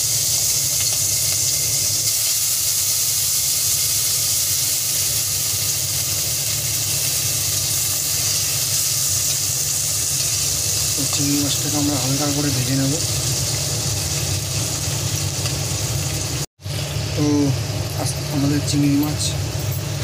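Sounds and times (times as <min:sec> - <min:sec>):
prawns sizzling in hot oil: 0:00.0 - 0:19.0.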